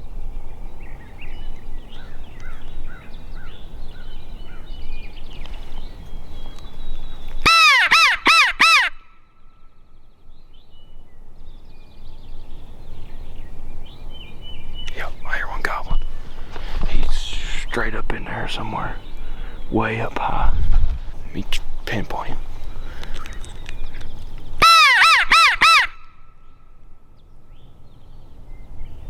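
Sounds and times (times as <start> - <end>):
crow cawing: 7.4 - 9.1, 24.6 - 26.2
wind rumble: 8.9 - 29.0
faint small birds chirping: 9.5 - 20.4, 21.2 - 24.6.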